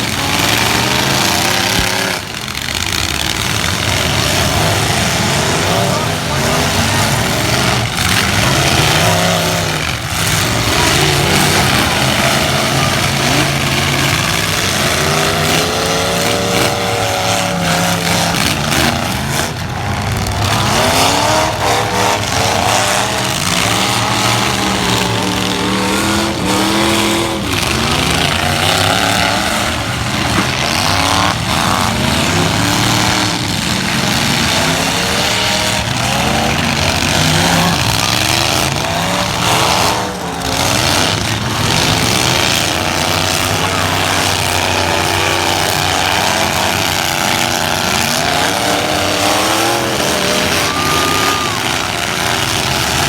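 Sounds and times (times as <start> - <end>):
truck engines revving: 0.0 - 53.0.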